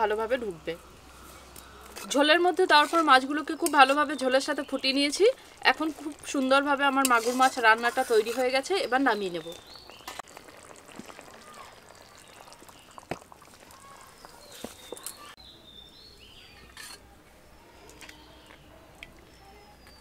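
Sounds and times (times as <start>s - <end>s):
small birds chirping: 8.6s - 16.9s, 17.6s - 20.0s.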